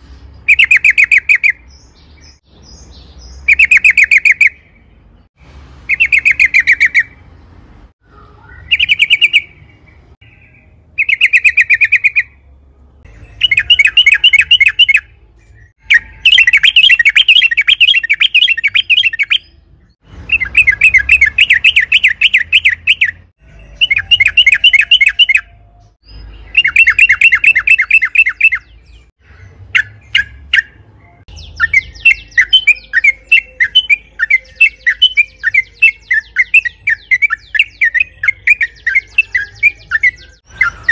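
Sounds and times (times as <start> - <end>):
bird singing rattling notes: 8.5 - 40.9.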